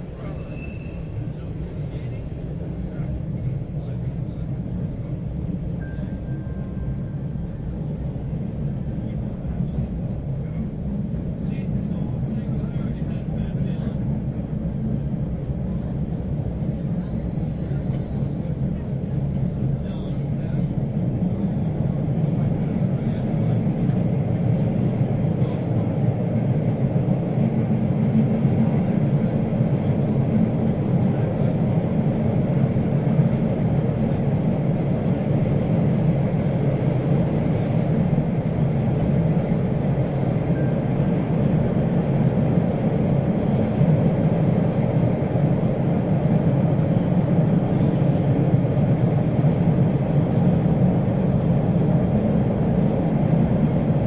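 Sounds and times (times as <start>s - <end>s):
subway train wheels rumbling: 0.0s - 54.0s.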